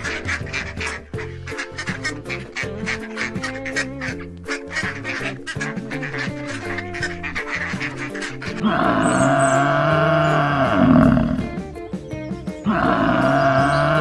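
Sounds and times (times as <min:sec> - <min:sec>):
background music: 0:00.0 - 0:14.0
long drawn-out animal call: 0:08.6 - 0:11.6, 0:12.6 - 0:14.0
short sharp animal calls: 0:08.6 - 0:11.6, 0:12.7 - 0:14.0.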